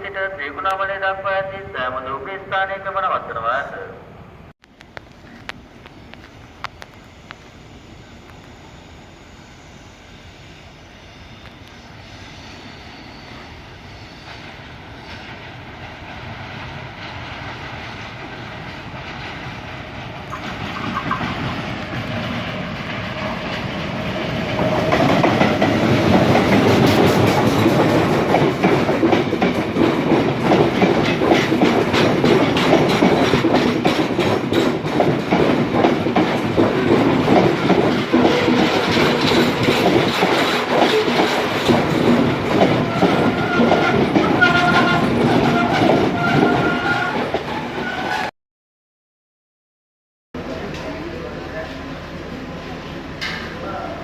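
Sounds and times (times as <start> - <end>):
express train passing: 0.0 - 48.3, 50.4 - 54.0
wheels clacking over rail joints: 14.4 - 48.3.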